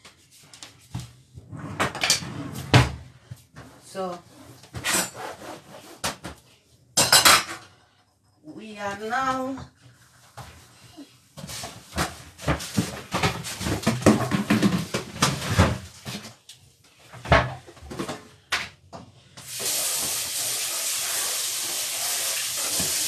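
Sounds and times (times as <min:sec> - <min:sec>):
cooking utensils clattering: 0:07.0 - 0:07.7
food sizzling in hot oil: 0:19.4 - 0:23.0.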